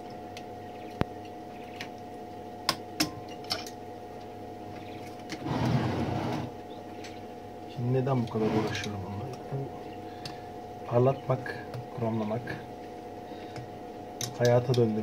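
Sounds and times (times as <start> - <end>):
electrical hum: 0.0 - 15.0
scraping or rustling: 5.3 - 6.6, 8.3 - 9.0.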